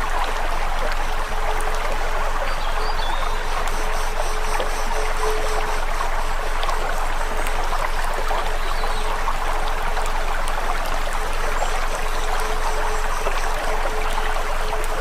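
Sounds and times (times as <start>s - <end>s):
steady hum: 3.2s - 15.0s.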